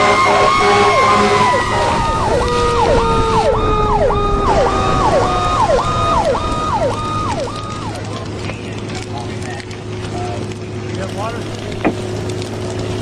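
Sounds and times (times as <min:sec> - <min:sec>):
siren fast yelp: 0:00.0 - 0:08.0
siren slow wail: 0:00.0 - 0:08.4
low rumble: 0:00.6 - 0:13.0.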